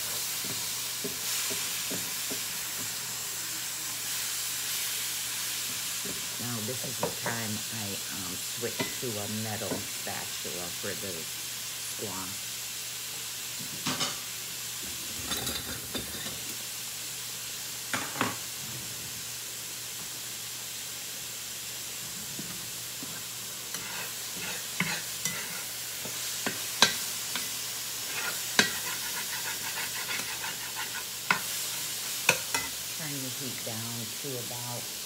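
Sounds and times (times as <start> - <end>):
vegetables sizzling in a pan: 0.0 - 35.0
metal spatula scraping a pan: 23.7 - 32.8.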